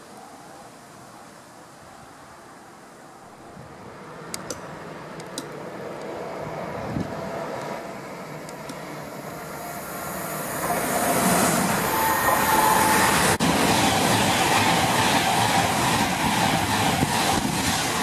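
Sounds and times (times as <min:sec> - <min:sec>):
train wheels rushing on rail: 0:03.6 - 0:18.0
high whine: 0:07.8 - 0:13.4.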